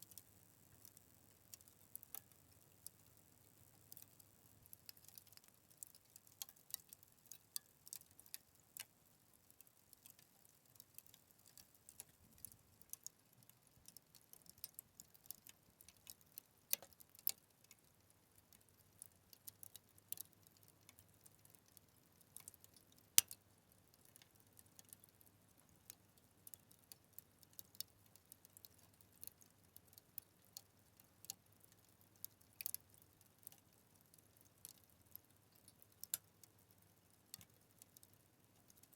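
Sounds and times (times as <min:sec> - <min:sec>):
fire crackling: 0:00.0 - 0:08.9, 0:09.8 - 0:17.3.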